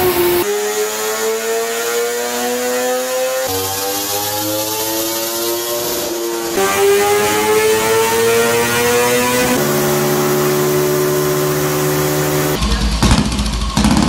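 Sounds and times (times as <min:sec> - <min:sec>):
small motorcycle engine running steadily: 0:00.0 - 0:14.0
sport motorcycle engine revving: 0:00.0 - 0:14.0
deep rough motorcycle engine: 0:06.5 - 0:14.0.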